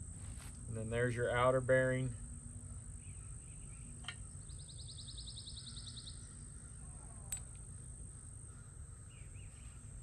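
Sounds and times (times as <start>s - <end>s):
insect drone: 0.0s - 10.0s
outdoor background noise: 0.0s - 10.0s
bird trill: 3.0s - 10.0s.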